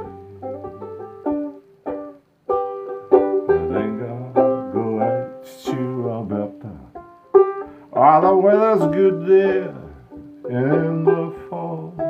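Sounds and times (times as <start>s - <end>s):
plucked string instrument melody: 0.0s - 12.0s.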